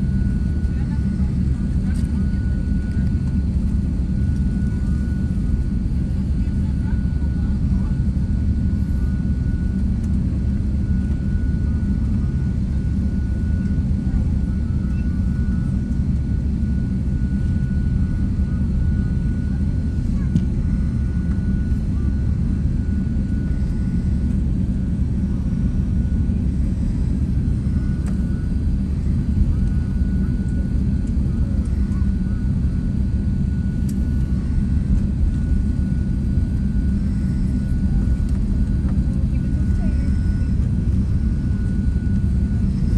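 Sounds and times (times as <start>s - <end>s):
jet engine rumble and whine: 0.0s - 42.9s.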